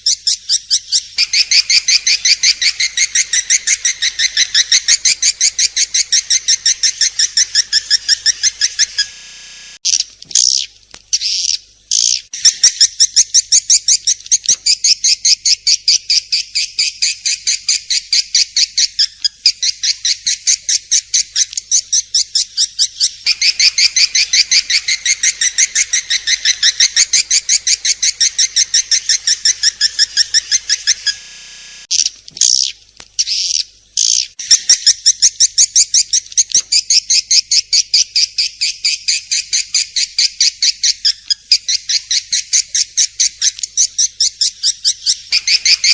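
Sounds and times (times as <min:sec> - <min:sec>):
swiftlets chirping rapidly: 0:01.2 - 0:09.8, 0:23.2 - 0:31.9, 0:45.3 - 0:45.9.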